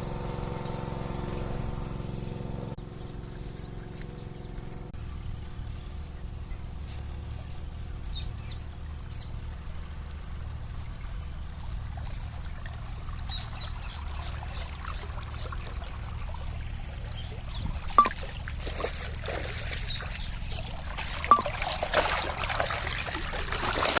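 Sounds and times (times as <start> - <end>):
pump engine humming: 0.0 - 24.0
water splashing and trickling: 5.4 - 24.0.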